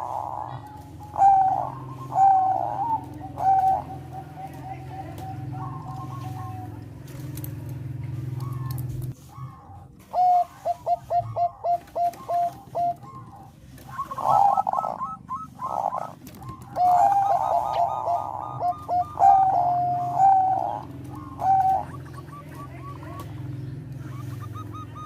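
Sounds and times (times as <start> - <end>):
dove cooing: 0.0 - 25.0
low steady hum: 0.0 - 25.0.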